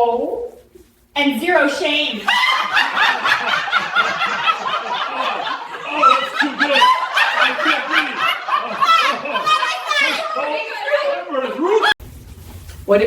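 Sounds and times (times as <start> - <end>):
woman laughing: 2.2 - 12.0.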